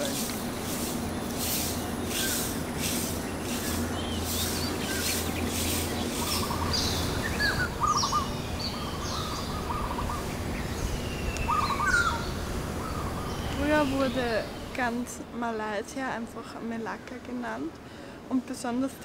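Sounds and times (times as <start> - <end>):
high pulsing hiss: 0.0 - 15.0
steady low hum: 0.0 - 15.4
birds chirping and trilling: 0.0 - 17.5.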